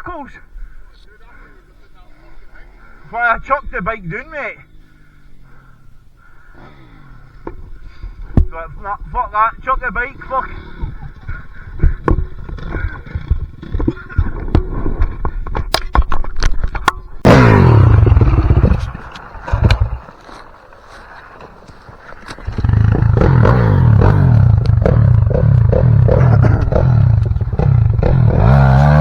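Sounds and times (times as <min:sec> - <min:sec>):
dirt bike engine revving: 0:17.2 - 0:21.0, 0:21.9 - 0:29.0
knocks and clatter: 0:22.2 - 0:29.0.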